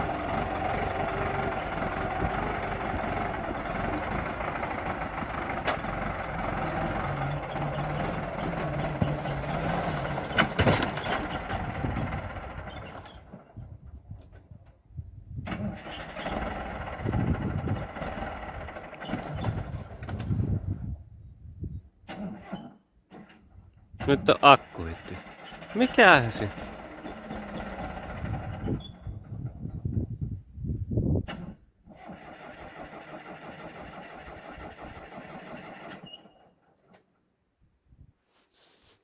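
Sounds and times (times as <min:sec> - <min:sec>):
diesel engine cranking: 0:00.0 - 0:14.2, 0:15.5 - 0:20.8, 0:24.0 - 0:29.8, 0:31.2 - 0:36.6.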